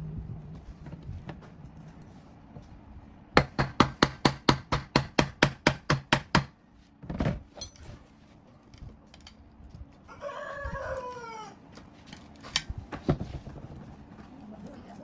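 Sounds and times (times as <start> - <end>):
rooster crowing: 10.0 - 11.6.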